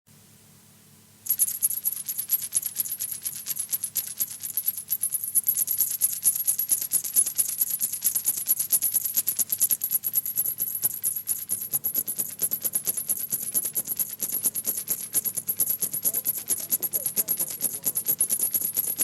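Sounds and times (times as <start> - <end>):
rapid high percussion strikes: 8.1 - 19.0
steady low hum: 14.2 - 18.4.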